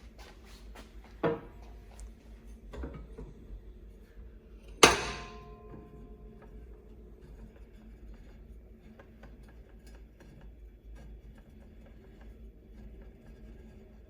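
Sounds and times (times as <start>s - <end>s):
sharp metallic clank: 4.8s - 6.8s.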